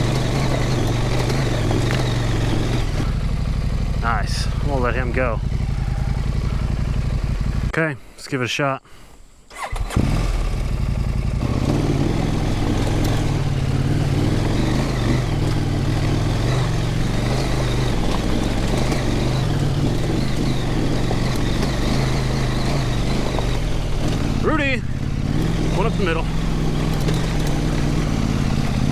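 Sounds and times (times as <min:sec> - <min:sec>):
motorcycle engine running: 0:00.0 - 0:07.8, 0:09.5 - 0:28.9.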